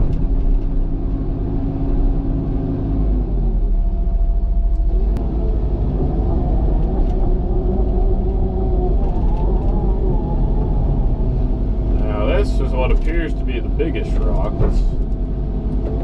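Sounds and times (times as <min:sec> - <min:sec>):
excavator diesel engine rumbling: 0:00.0 - 0:16.0.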